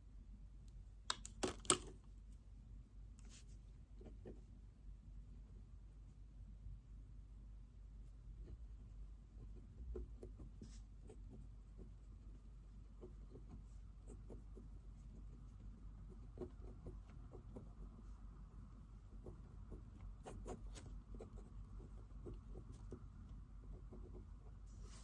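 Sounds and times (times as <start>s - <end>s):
room hum: 0.0s - 25.0s
pen clicks: 1.1s - 2.0s
pen scratching on paper: 8.4s - 25.0s.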